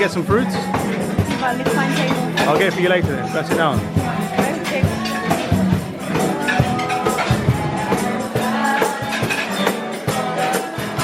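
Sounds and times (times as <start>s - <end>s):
live band music: 0.0s - 11.0s
percussion beat: 0.0s - 11.0s.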